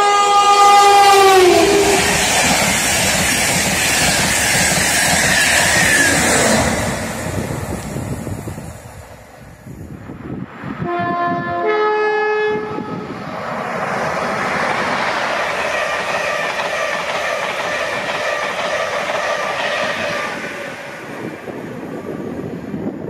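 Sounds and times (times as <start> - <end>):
two-tone locomotive horn: 0.0 - 2.3, 10.8 - 13.3
train passing at speed: 0.0 - 23.0.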